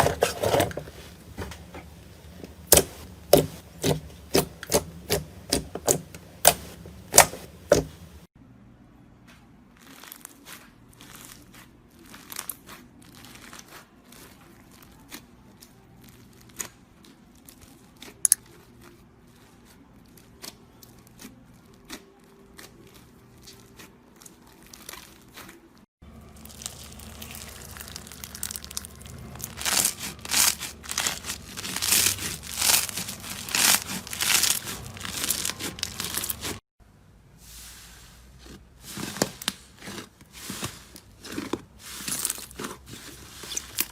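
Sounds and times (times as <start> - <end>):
slime squeezed by hand crackling: 26.2 - 36.6.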